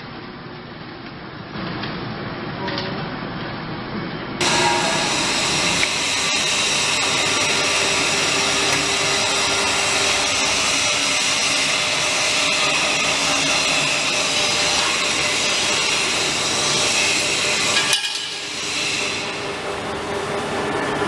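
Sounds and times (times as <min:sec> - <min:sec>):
machine running steadily: 0:02.6 - 0:21.0
steady high tones: 0:04.4 - 0:21.0.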